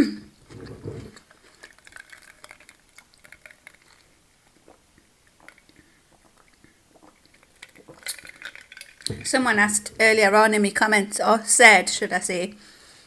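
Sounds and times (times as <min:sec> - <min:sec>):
person chewing: 0:00.5 - 0:09.2.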